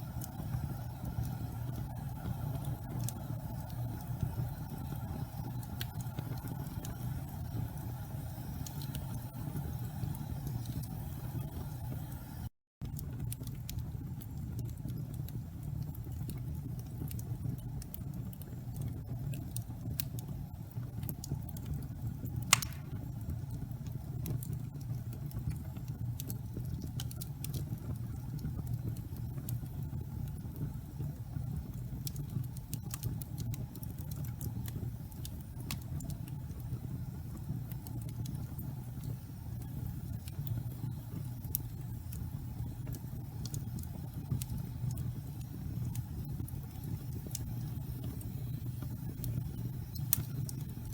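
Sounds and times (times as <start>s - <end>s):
wood fire crackling: 0.0s - 50.9s
sharp pop of fire: 22.5s - 23.1s.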